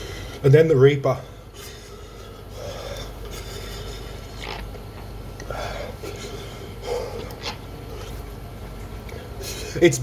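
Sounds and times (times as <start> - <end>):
man breathing hard: 0.0 - 0.4, 1.2 - 4.3, 5.4 - 7.4.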